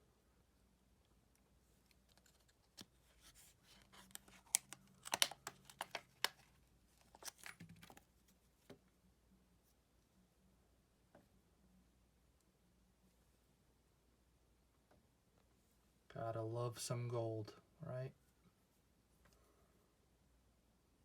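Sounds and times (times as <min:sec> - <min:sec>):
packaging crackling: 0:03.7 - 0:08.0.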